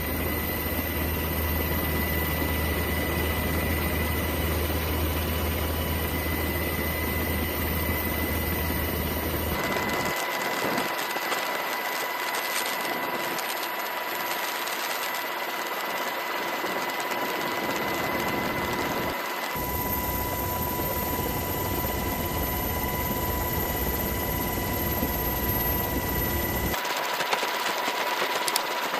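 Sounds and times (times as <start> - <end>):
engine whine and rumble: 0.0 - 10.1, 18.5 - 26.8.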